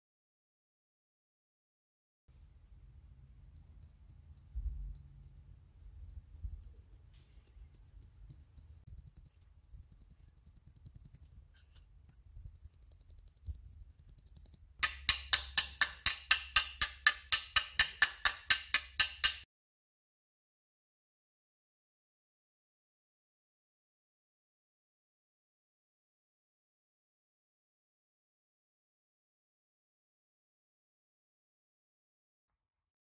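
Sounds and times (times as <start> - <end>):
faint low hum: 2.3 - 14.8
rapid sharp knocks: 12.4 - 19.4.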